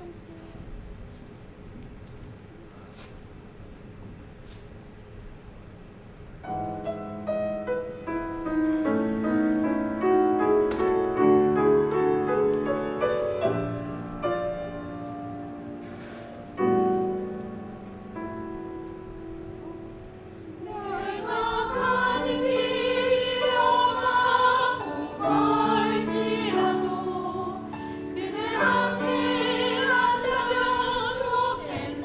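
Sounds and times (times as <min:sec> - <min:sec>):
piano playing slow chords: 0:06.4 - 0:32.0.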